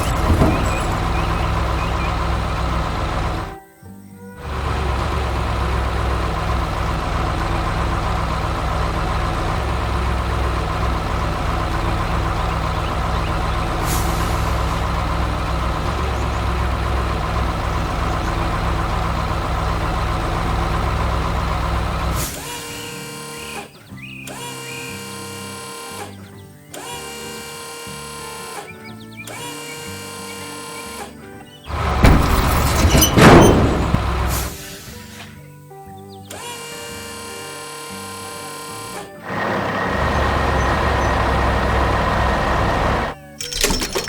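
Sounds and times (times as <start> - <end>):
heavy vehicle engine running: 0.0 - 3.6, 4.4 - 23.8, 31.7 - 35.3, 38.8 - 44.0
light background music: 22.4 - 31.7, 34.4 - 39.3.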